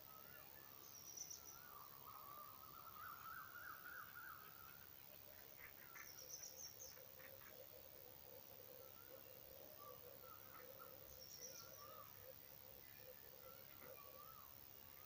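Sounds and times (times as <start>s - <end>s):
long wavering bird call: 1.3s - 4.8s.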